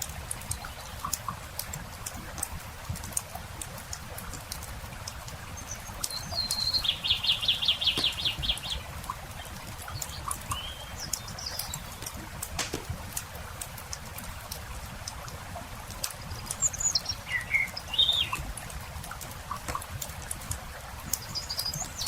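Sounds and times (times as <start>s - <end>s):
campfire crackling: 0.0s - 22.0s
bird chirps: 5.6s - 8.9s, 9.9s - 12.1s, 16.2s - 18.4s
songbird trilling: 5.7s - 8.8s, 10.0s - 12.0s, 16.3s - 18.4s.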